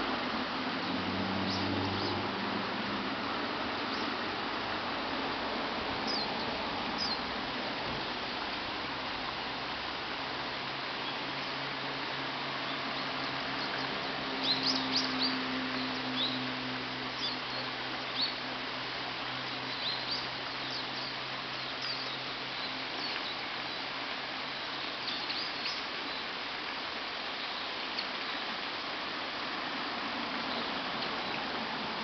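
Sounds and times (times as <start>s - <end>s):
steady background hiss: 0.0s - 32.0s
birds giving high thin calls: 6.0s - 7.3s, 12.6s - 16.5s, 17.1s - 18.4s, 19.4s - 28.7s.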